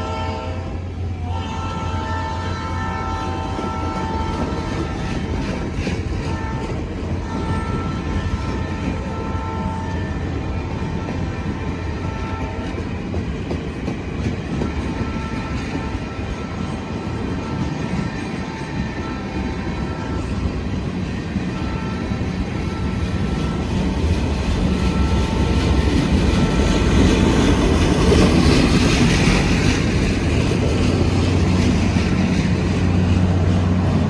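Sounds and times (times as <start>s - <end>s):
locomotive horn blasts: 0.0s - 12.8s, 14.6s - 20.8s, 21.4s - 27.4s
freight train rumble and rail noise: 0.0s - 34.0s.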